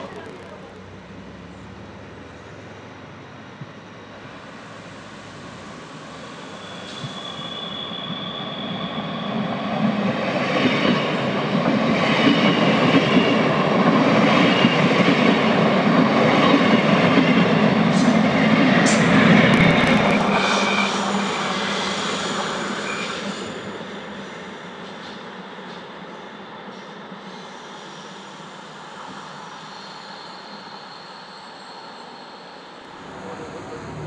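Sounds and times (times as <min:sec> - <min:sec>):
train rumbling past: 0:00.0 - 0:24.5, 0:32.8 - 0:34.0
wheels squealing on rails: 0:03.4 - 0:34.0.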